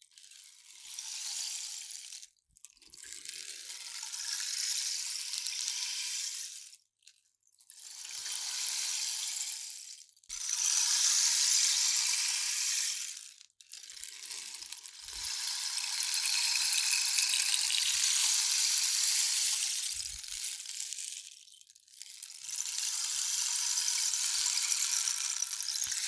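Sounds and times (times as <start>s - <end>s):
rainstick beads cascading: 8.1s - 26.0s.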